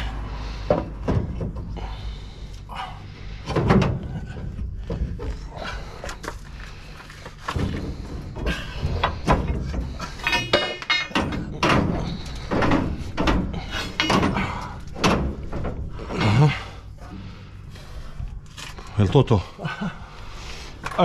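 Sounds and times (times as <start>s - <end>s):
metal knocks and clanks: 0.6s - 1.9s, 3.4s - 6.4s, 7.2s - 16.6s.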